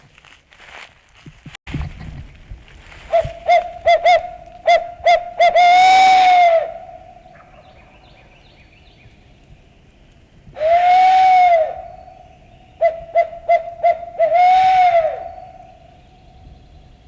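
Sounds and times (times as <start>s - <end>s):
owl hooting: 3.1s - 8.7s, 10.6s - 16.8s.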